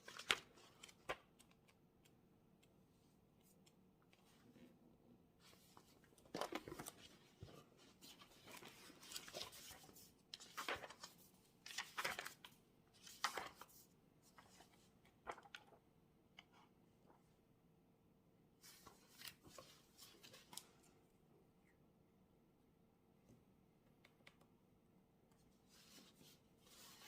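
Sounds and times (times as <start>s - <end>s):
paper rustling: 0.0s - 1.4s, 5.4s - 15.8s, 18.6s - 20.8s, 25.7s - 27.0s.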